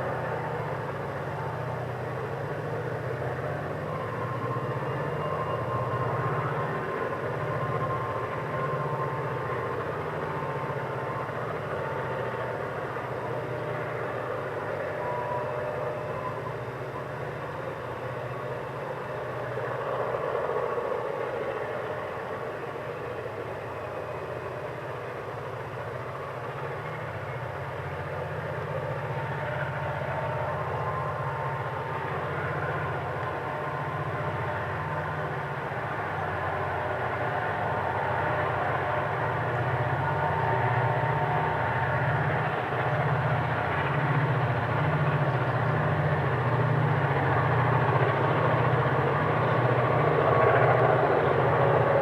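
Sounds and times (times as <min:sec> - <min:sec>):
faint high-pitched tones: 0:00.0 - 0:42.1
diesel locomotive engines rumbling: 0:00.0 - 0:52.0.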